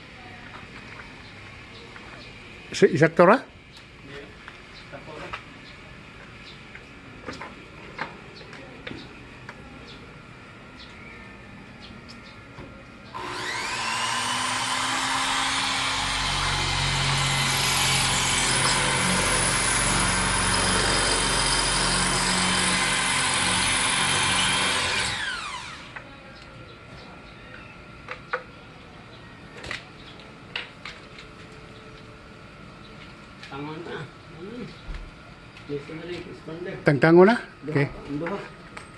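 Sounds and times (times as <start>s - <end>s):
electric drill whining: 13.2s - 26.0s.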